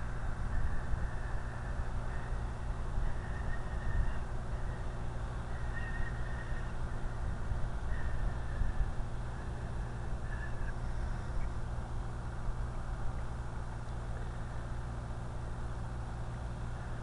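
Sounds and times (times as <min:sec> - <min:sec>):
electric motors whining: 0:00.0 - 0:11.6
wind rumble on microphone: 0:00.0 - 0:17.0.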